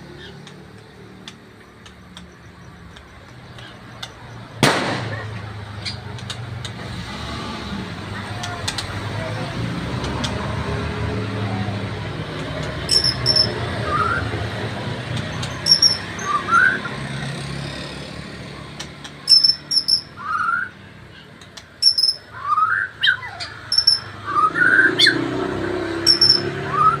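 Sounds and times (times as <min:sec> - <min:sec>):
bird singing whistles: 0:12.9 - 0:14.4, 0:15.6 - 0:17.0, 0:19.3 - 0:20.8, 0:21.8 - 0:25.2, 0:26.1 - 0:27.0.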